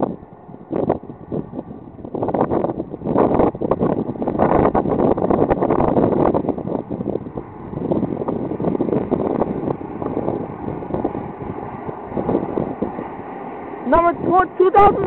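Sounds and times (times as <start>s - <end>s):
train rushing past: 0.0s - 15.0s
wind buffeting the microphone: 0.0s - 15.0s.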